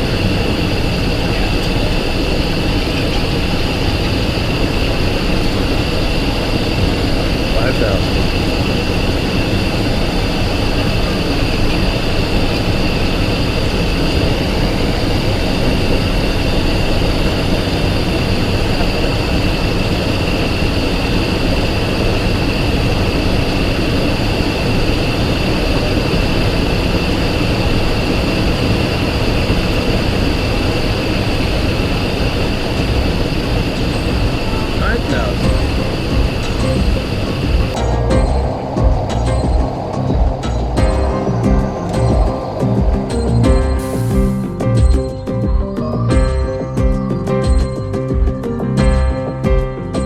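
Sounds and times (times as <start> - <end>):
jet engine whine: 0.0 - 48.6.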